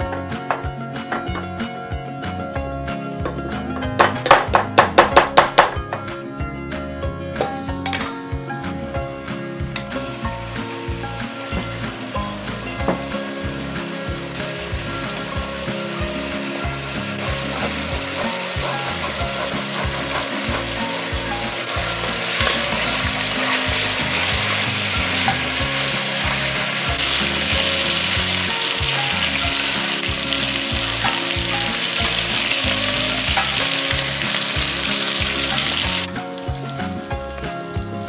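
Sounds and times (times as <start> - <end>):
background music: 0.0 - 38.0
chicken sizzling in a pan: 9.9 - 37.0
wooden spoon stirring: 17.2 - 24.8.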